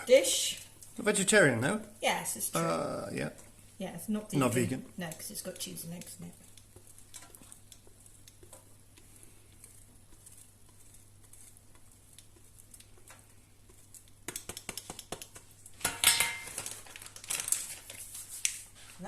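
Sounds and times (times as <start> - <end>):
kitchen handling noises: 14.4 - 17.8
dishes and utensils clattering: 15.8 - 16.8.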